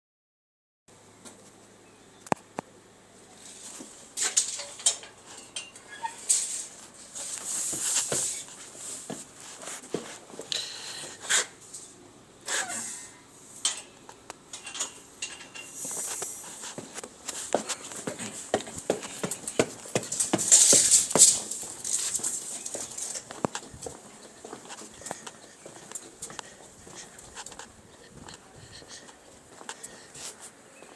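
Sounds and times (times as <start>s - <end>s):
short bursts of hiss: 12.4s - 13.6s.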